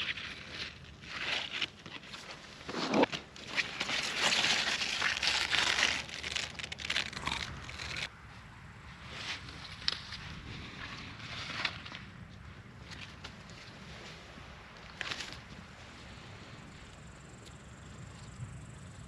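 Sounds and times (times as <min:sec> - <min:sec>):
foliage rustling and crunching: 0:00.0 - 0:08.1, 0:12.8 - 0:16.2.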